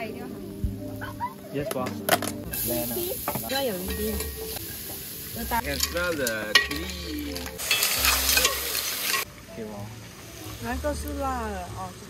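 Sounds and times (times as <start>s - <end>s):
clams sizzling in a pot: 2.2s - 9.3s, 10.0s - 12.0s
spatula stirring: 5.5s - 9.2s.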